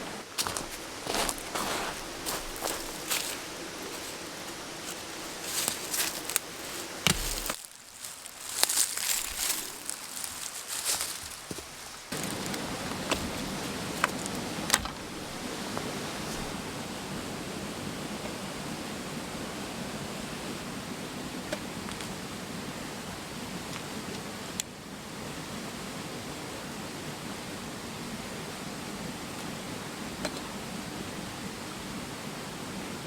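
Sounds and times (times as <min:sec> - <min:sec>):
mountain stream rushing: 0:00.0 - 0:24.4.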